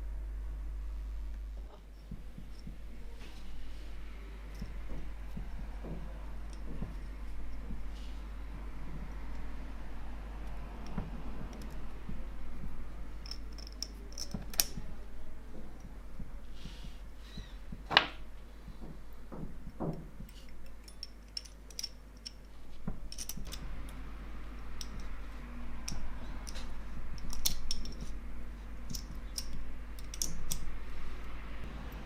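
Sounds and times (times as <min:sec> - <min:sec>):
soft rubbing hiss: 0:01.6 - 0:20.8
small metal parts clicking: 0:10.4 - 0:11.9, 0:13.2 - 0:14.8, 0:20.3 - 0:24.0, 0:24.7 - 0:25.2, 0:25.8 - 0:28.2, 0:28.8 - 0:30.8.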